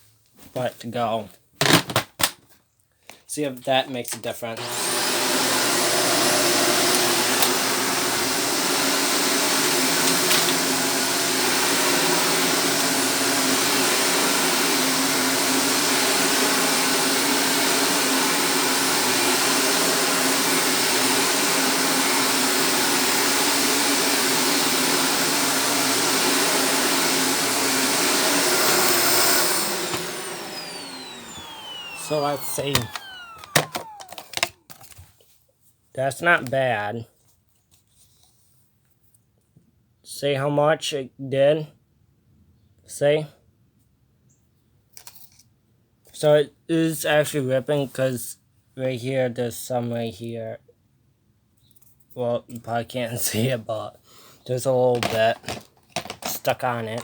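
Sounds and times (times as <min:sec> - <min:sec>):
vacuum cleaner motor whine: 0:04.6 - 0:35.0.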